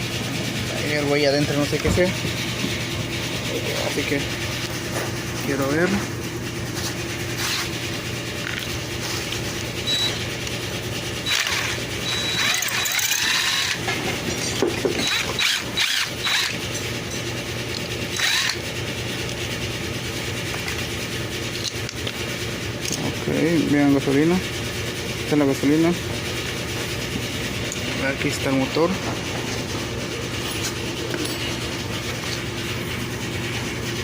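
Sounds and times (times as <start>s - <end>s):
steady low hum: 0.0s - 34.0s
parts squeaking and squealing: 6.9s - 19.3s.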